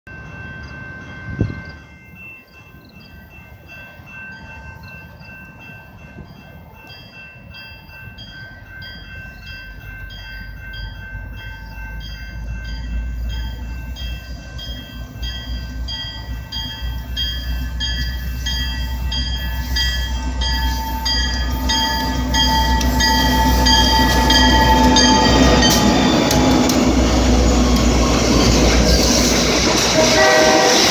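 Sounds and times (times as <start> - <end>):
freight train rumble: 0.1 - 30.9
regular ringing: 6.9 - 29.9.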